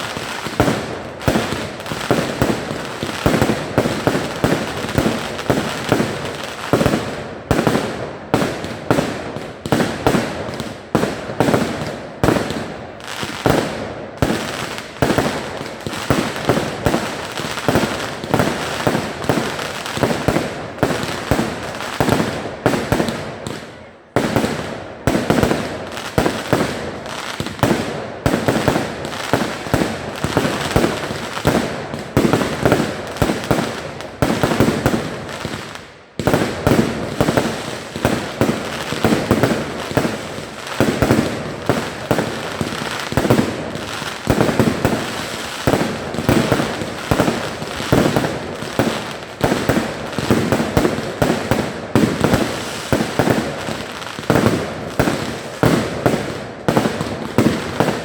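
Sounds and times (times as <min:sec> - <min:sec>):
fireworks banging: 0:00.0 - 0:58.0.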